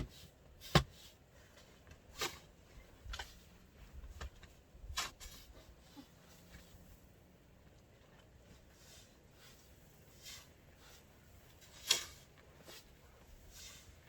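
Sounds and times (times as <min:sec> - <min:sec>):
snow shovel crunching snow: 0:08.6 - 0:14.0.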